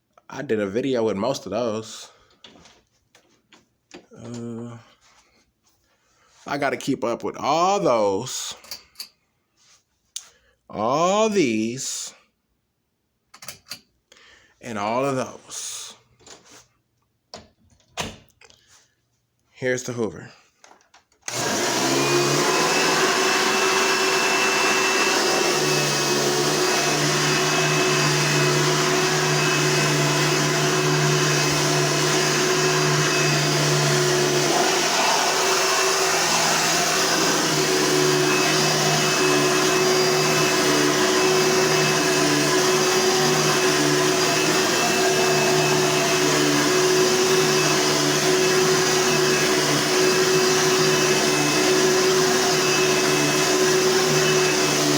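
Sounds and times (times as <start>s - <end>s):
vacuum cleaner running: 21.3s - 54.9s.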